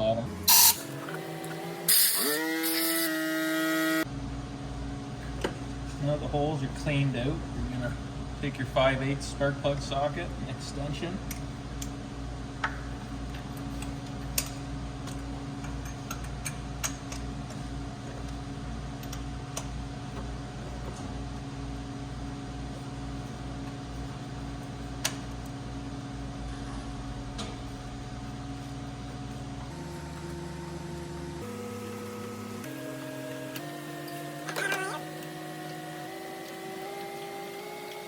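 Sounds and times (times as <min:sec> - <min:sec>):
steady machine hum: 0:00.0 - 0:38.0.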